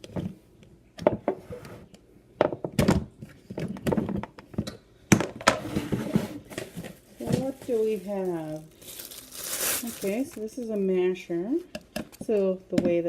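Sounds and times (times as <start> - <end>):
rustling: 5.8 - 10.9.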